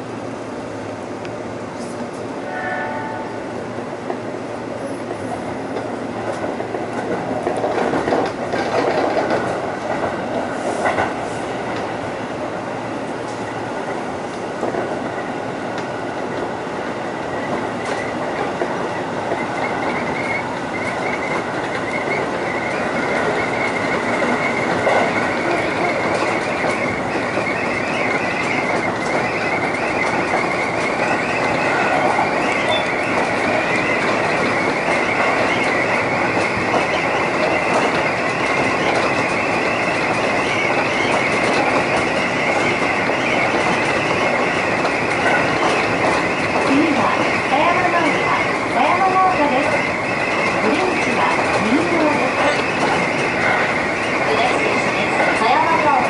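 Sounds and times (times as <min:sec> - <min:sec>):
electric train running: 0:00.0 - 0:56.0
high whine: 0:02.4 - 0:03.7.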